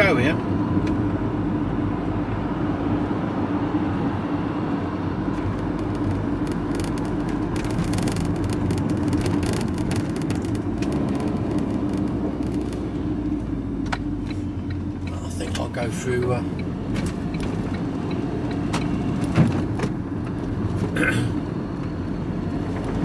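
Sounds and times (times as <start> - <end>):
vehicle engine rumble: 0.0 - 23.0
crackly hiss: 5.7 - 12.9.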